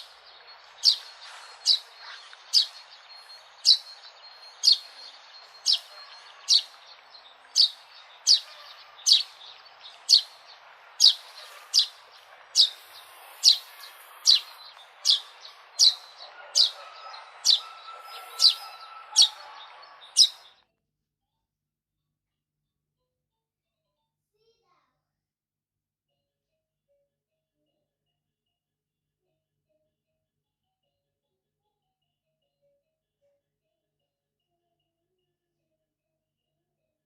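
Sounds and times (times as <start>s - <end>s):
sparrow chirping: 0.0s - 20.5s.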